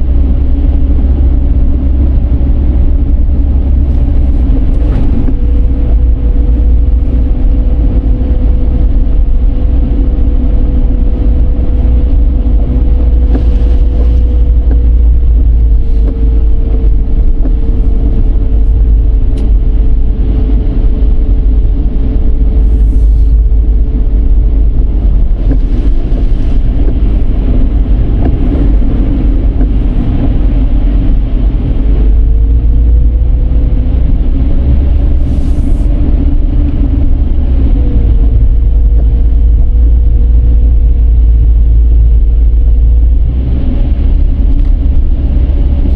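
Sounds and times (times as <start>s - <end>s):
car road and engine rumble: 0.0s - 45.9s.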